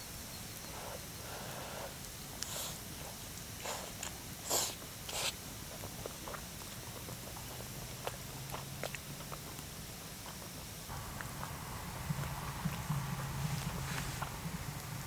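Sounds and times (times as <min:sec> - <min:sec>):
campfire crackling and popping: 0:10.9 - 0:15.0
rustling bursts: 0:10.9 - 0:15.0.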